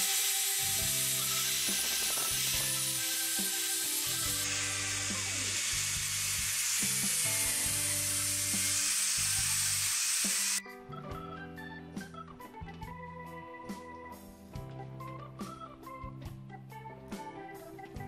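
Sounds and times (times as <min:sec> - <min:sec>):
background music: 0:00.0 - 0:09.8, 0:10.6 - 0:18.0
angle grinder grinding metal: 0:00.0 - 0:10.6.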